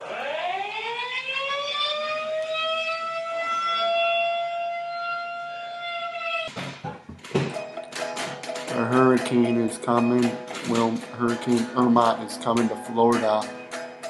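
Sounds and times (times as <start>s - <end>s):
warning siren winding up: 0.0s - 6.6s.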